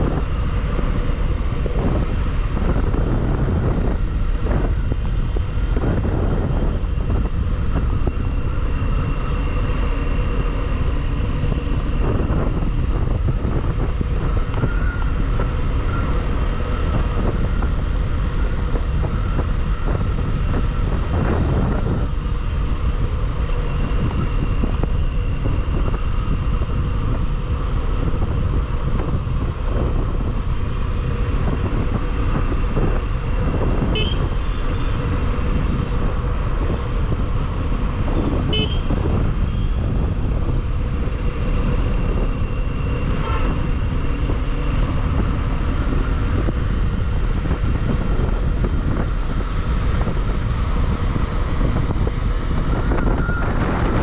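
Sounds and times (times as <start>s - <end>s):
wind rush over microphone: 0.0s - 54.0s
motorcycle horn toots: 33.9s - 34.9s, 38.4s - 39.8s.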